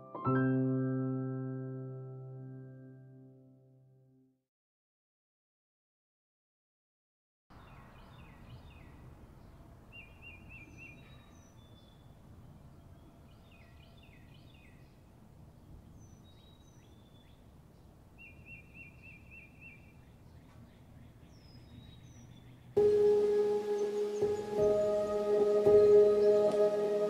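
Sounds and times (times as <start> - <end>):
songbirds chirping: 7.5 - 27.0.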